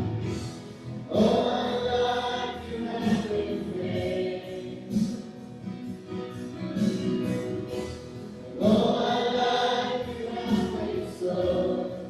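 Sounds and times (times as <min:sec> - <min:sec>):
instrumental accompaniment: 0:00.0 - 0:10.9
group singing worship song: 0:01.0 - 0:05.4, 0:08.5 - 0:12.0.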